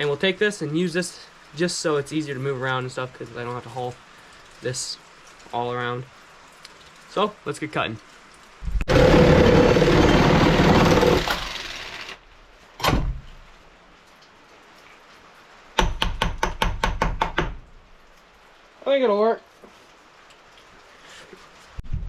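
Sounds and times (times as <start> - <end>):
power saw cutting: 8.9 - 12.2
knock: 15.8 - 17.6.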